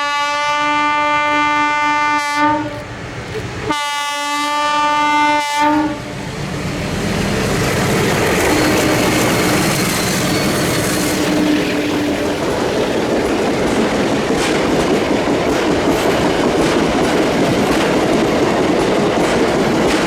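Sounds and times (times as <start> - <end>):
train horn blasts: 0.0 - 2.8, 3.7 - 6.1
train wheels rumbling on rails: 0.0 - 20.0.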